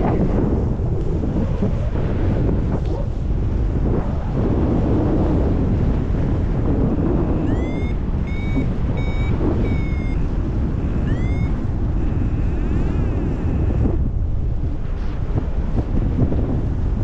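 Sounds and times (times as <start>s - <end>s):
wind rush on microphone: 0.0s - 17.0s
variometer beeping: 7.3s - 11.7s.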